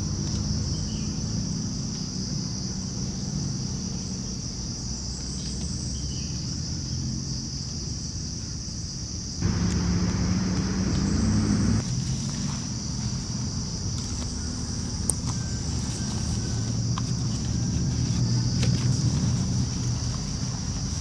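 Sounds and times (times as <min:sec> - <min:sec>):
insects buzzing chorus: 0:00.4 - 0:21.0
low rumble with faint hum: 0:09.4 - 0:21.0.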